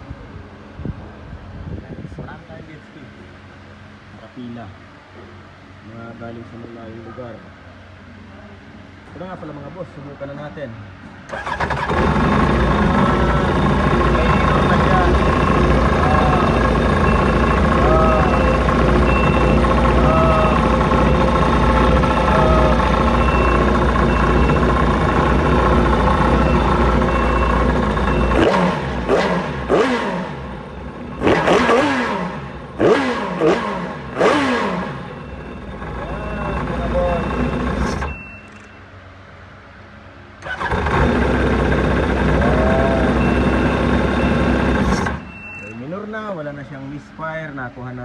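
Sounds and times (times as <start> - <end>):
jet ski engine running: 11.3 - 38.2, 40.4 - 45.2
short high beep: 13.0 - 28.7, 35.2 - 38.9, 42.7 - 45.9.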